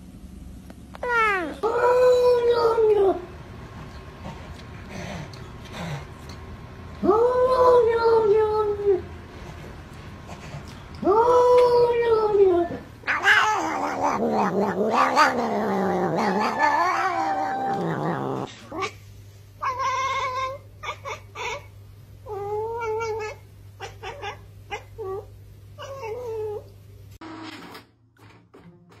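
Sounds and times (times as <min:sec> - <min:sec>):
cat yowling: 0:11.0 - 0:18.9, 0:22.3 - 0:26.6.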